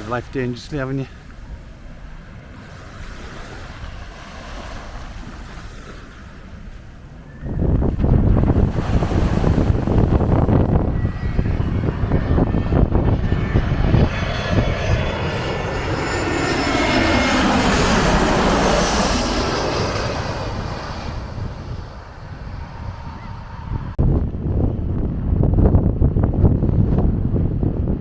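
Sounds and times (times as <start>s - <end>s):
jet airliner passing overhead: 0.0s - 28.0s
wind buffeting microphone: 0.0s - 28.0s.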